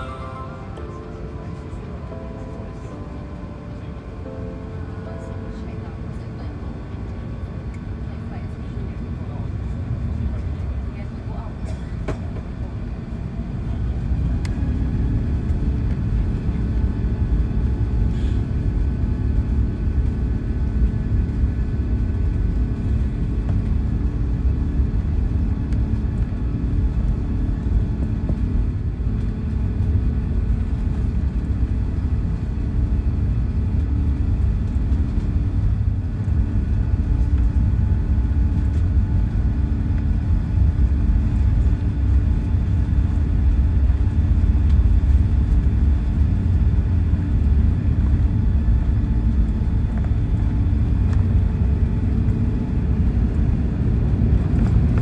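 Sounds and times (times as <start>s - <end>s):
faint steady tones: 0.0s - 9.3s
low rumble of aircraft engines: 0.0s - 55.0s.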